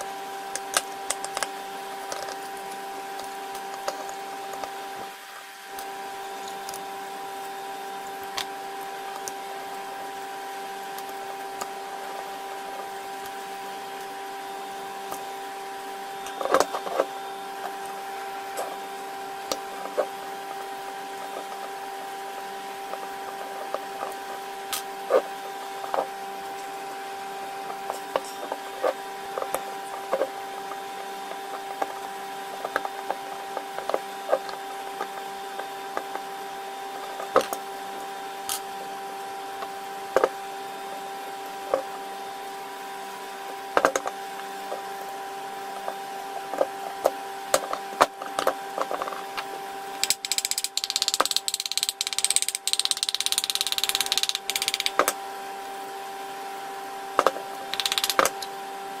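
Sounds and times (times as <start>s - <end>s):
steady hum: 0.0s - 59.0s
clicks and knocks of parts handled: 0.5s - 1.5s, 2.1s - 2.5s, 46.5s - 55.2s, 57.2s - 58.5s.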